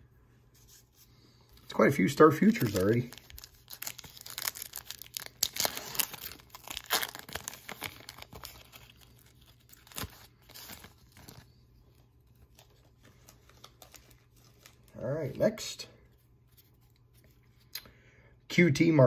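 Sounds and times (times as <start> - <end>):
foil wrapper tearing and crinkling: 2.4 - 11.6.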